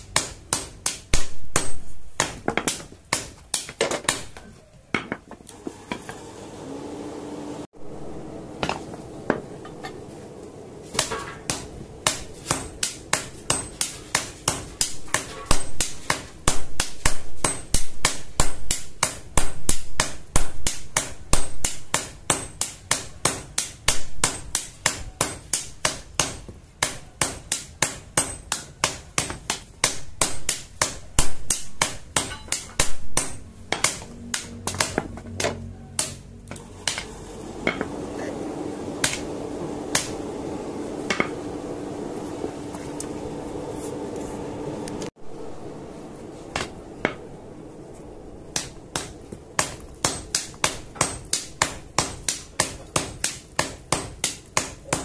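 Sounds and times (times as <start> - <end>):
hammer striking iron on anvil: 0.0 - 5.2, 10.9 - 38.0, 39.0 - 40.2, 41.0 - 41.4, 48.5 - 55.0.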